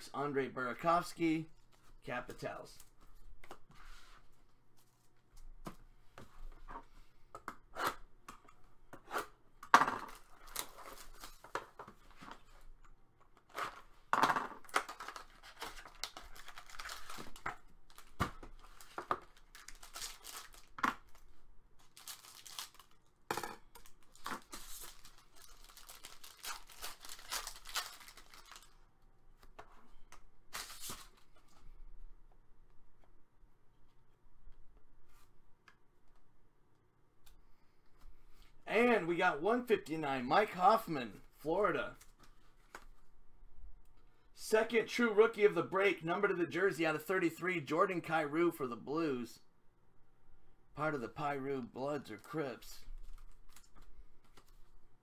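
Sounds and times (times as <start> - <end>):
card pack wrappers tearing and crinkling: 10.1 - 11.5, 14.6 - 21.2, 21.8 - 23.1, 23.8 - 28.8, 30.5 - 31.2.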